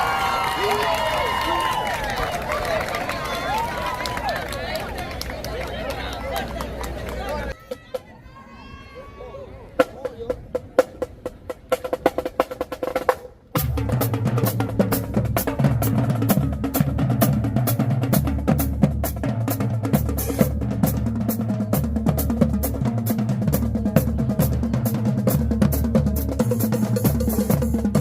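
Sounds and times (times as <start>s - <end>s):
marching band playing: 9.8s - 28.0s.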